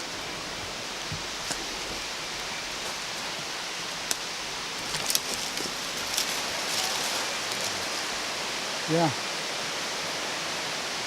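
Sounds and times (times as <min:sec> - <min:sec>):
rushing falling water: 0:00.0 - 0:11.0.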